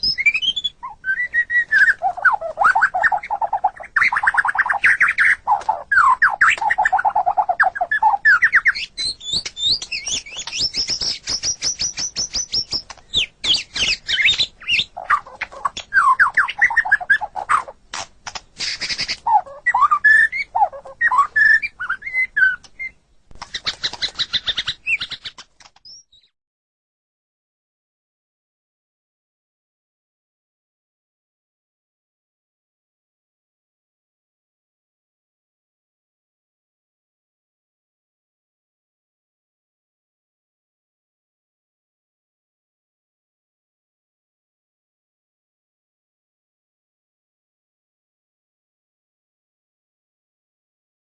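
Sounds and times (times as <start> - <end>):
bird singing whistled phrases: 0.0 - 17.6, 18.6 - 23.0.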